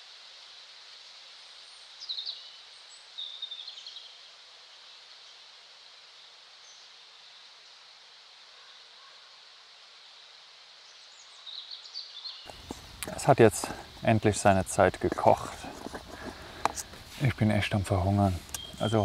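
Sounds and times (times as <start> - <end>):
high background hiss: 0.0 - 19.0
quick high bird chirps: 18.5 - 19.0.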